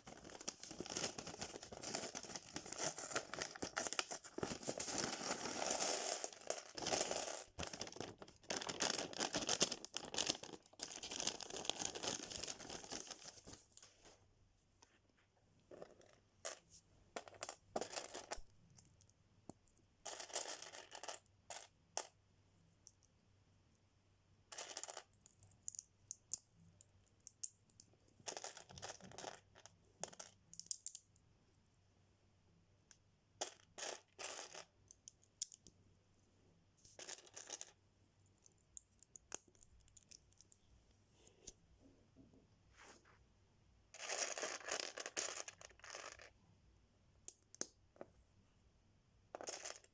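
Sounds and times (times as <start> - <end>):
plastic rustling: 0.0 - 13.9.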